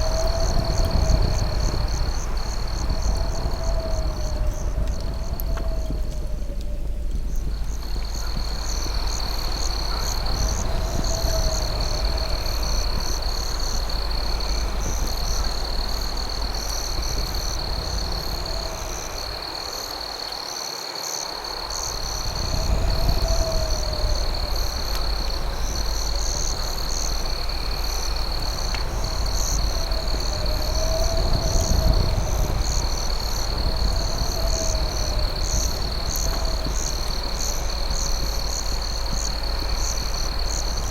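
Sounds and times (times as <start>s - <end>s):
low rumble: 0.0s - 20.1s, 21.6s - 40.9s
crickets trilling: 0.0s - 40.9s
fast pulsing insect chirp: 0.0s - 40.9s.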